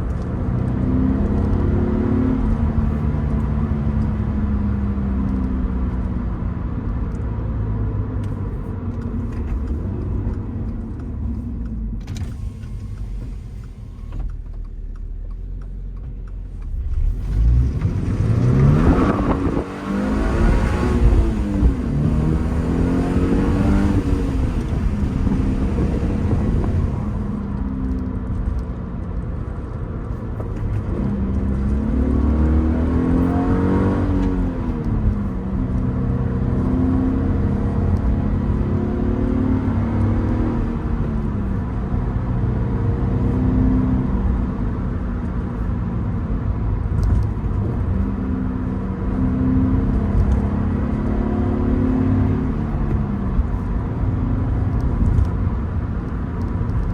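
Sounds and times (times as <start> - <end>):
car engine changing gears: 0.0 - 56.9.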